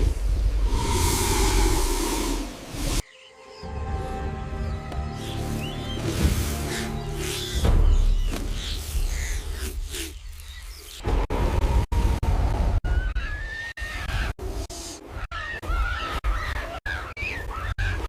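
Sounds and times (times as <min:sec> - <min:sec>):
deep steady rumble: 0:00.0 - 0:03.0.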